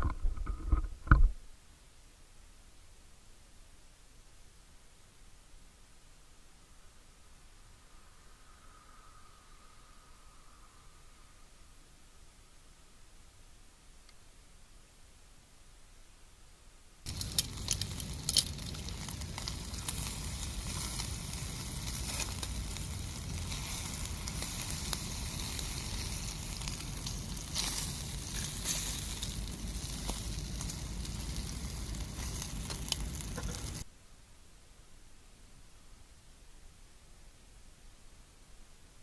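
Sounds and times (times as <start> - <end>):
spitting fat crackling and popping: 17.1 - 33.8
pork belly sizzling: 17.1 - 33.9.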